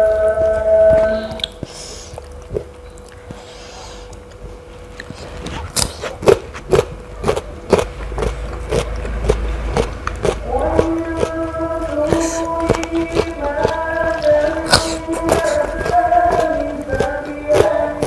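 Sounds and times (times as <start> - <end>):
crisp chewing crunches: 0.0 - 18.0
bite into cucumber: 5.0 - 18.0.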